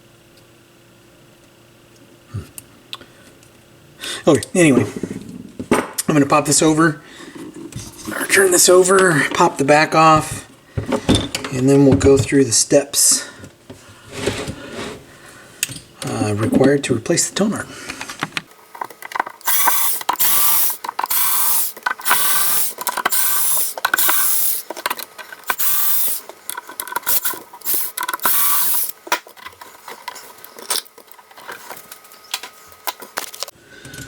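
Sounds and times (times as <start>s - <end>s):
screwdriver whirring and ratcheting: 18.8s - 31.5s.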